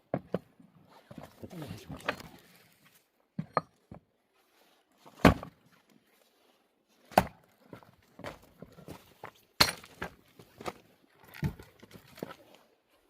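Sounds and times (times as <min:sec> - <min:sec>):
axe chopping firewood: 0:05.1 - 0:05.5, 0:07.1 - 0:07.4, 0:09.6 - 0:10.7.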